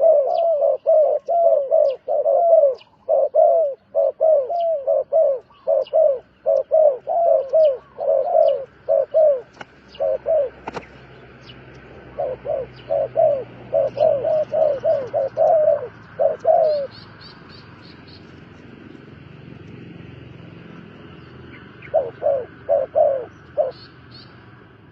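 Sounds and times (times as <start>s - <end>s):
bird hooting: 0.0s - 11.0s, 12.0s - 17.1s, 21.8s - 24.3s.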